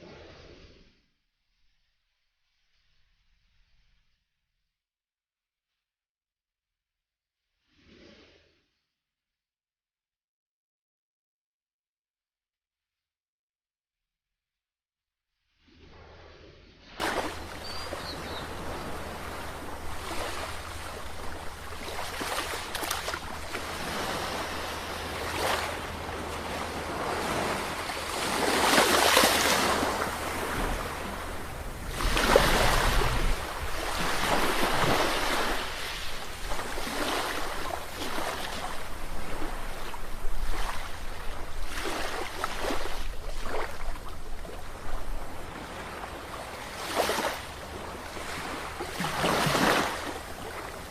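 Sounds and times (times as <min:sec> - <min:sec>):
sea waves breaking ashore: 0:15.9 - 0:50.9.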